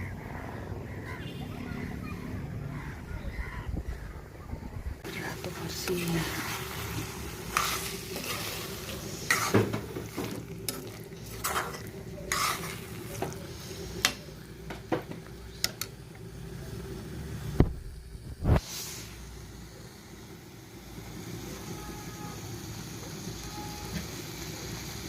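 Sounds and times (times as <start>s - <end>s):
faint frying: 5.0s - 25.0s
utensil scraping a pot: 5.1s - 14.1s.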